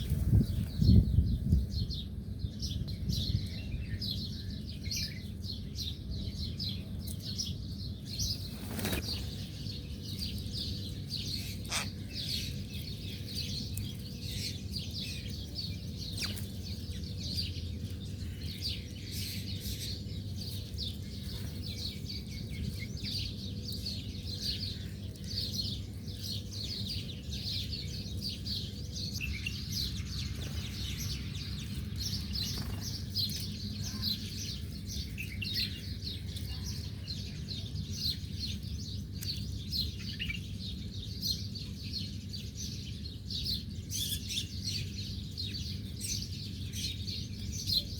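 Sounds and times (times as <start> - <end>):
small birds chirping: 0.0 - 47.9
steady low rumble: 20.2 - 36.4.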